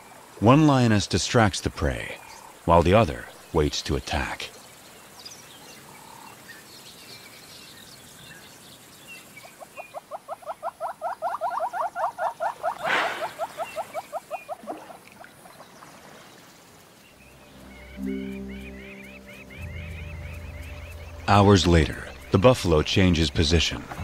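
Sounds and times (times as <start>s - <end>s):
animal chirping call: 9.5s - 14.7s
faint high bird chirps: 17.1s - 22.4s.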